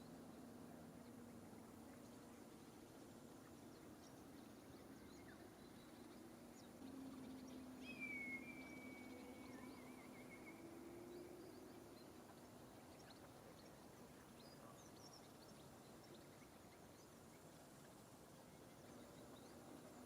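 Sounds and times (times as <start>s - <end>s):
birds chirping: 0.0s - 20.0s
low steady hum: 0.0s - 20.0s
whistled bird call: 7.7s - 10.8s.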